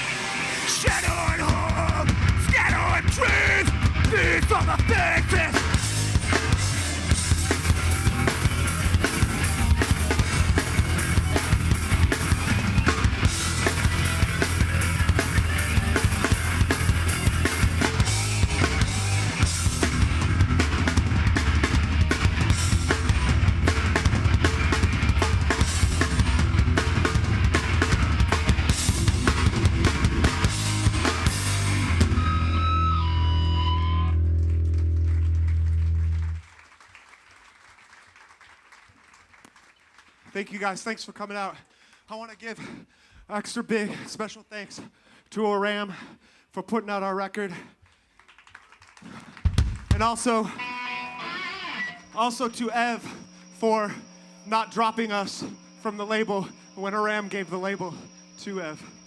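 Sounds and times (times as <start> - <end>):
distorted guitars and bass: 0.0 - 36.4, 49.6 - 59.0
ringing guitar tones: 4.8 - 35.0, 50.0 - 59.0.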